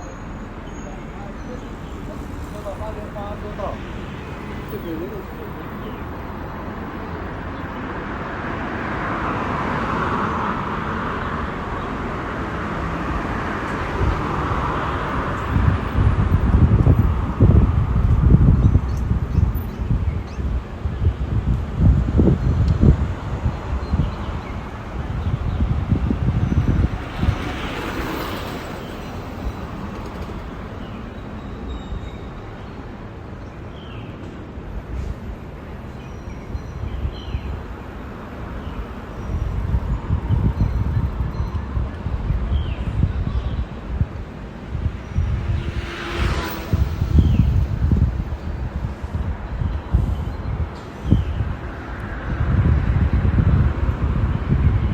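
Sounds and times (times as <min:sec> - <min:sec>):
vehicle passing on road: 0:00.3 - 0:19.2, 0:21.2 - 0:31.6, 0:43.8 - 0:50.2, 0:51.3 - 0:54.9
wind buffeting microphone: 0:00.4 - 0:54.9.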